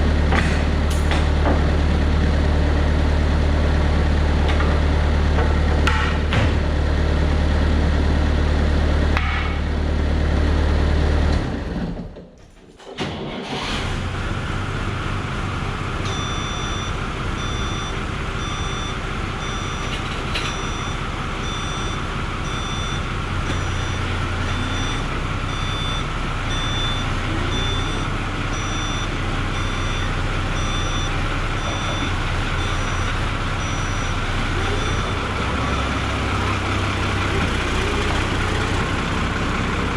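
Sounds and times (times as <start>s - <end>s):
skid steer diesel engine running: 0.0s - 12.2s, 13.4s - 39.9s
electronic warning beeper: 16.1s - 19.9s.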